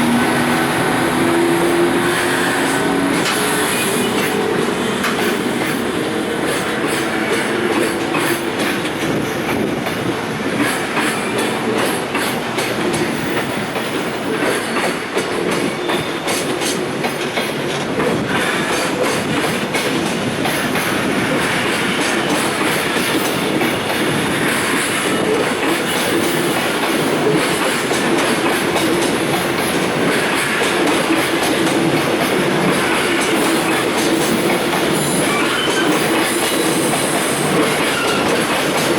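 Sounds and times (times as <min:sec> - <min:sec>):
train wheels clacking over rail joints: 0:00.0 - 0:38.9
wavering wheel squeal: 0:35.0 - 0:36.4, 0:37.3 - 0:38.4.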